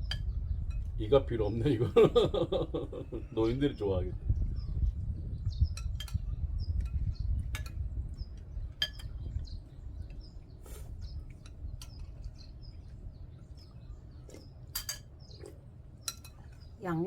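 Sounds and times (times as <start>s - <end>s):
small birds chirping: 0.0s - 17.0s
metal spoons clinking on bowls: 5.7s - 7.8s, 8.7s - 9.4s, 11.3s - 12.5s, 14.4s - 16.7s.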